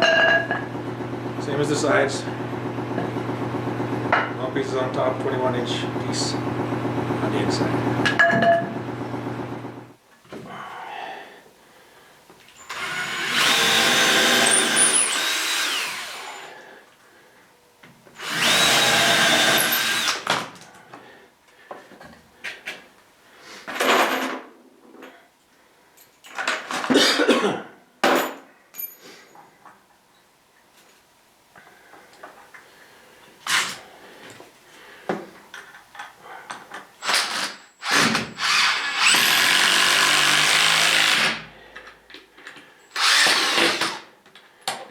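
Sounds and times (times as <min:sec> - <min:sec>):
power drill whining into wood: 0:12.6 - 0:16.6, 0:18.2 - 0:20.4, 0:37.0 - 0:41.5, 0:42.9 - 0:44.0.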